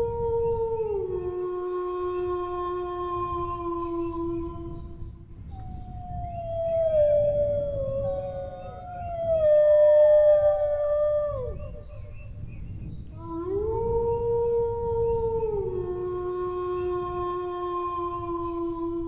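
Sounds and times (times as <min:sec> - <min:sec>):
dogs howling: 0:05.9 - 0:12.2, 0:13.2 - 0:19.0.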